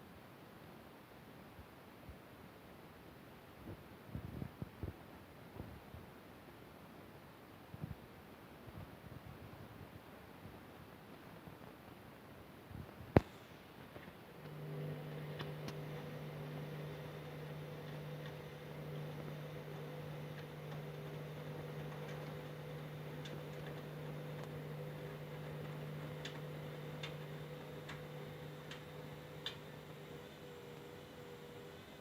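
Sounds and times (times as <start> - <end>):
washing machine humming: 13.2 - 32.0.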